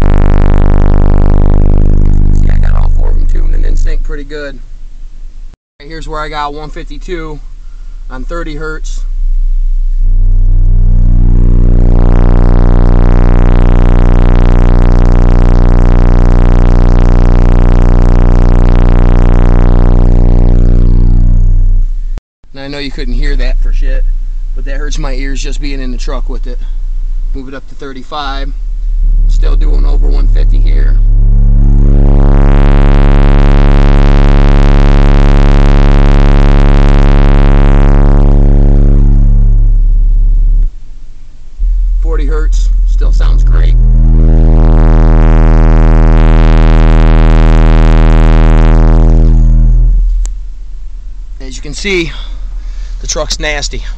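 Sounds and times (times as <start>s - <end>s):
distorted bass drone: 0.0s - 53.9s.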